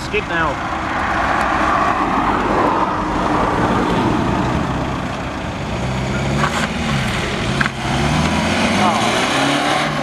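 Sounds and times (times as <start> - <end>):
car engine running: 0.0 - 9.0.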